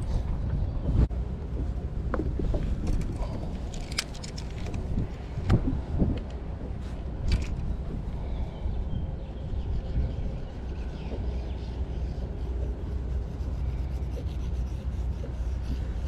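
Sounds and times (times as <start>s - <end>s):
wind buffeting microphone: 0.0s - 13.5s
fishing gear knocks and clicks: 2.1s - 6.4s, 7.2s - 8.1s.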